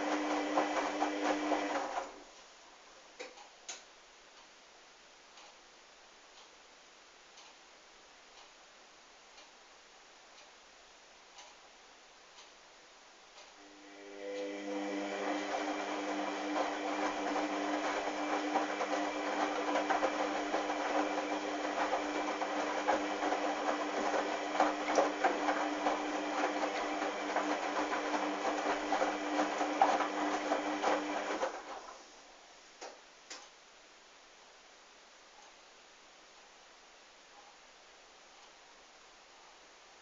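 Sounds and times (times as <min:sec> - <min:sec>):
washing machine running: 0:00.0 - 0:02.2, 0:13.8 - 0:32.0.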